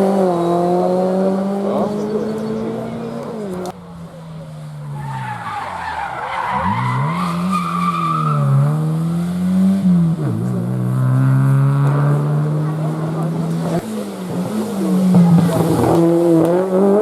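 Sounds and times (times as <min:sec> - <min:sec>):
rally car engine revving: 0:00.0 - 0:17.0
tyres squealing and skidding: 0:04.7 - 0:08.9.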